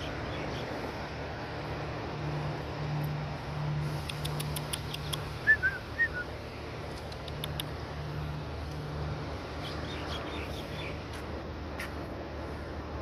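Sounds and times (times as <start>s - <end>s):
low outdoor hum: 0.0s - 13.0s
small bird chirping: 4.0s - 6.3s.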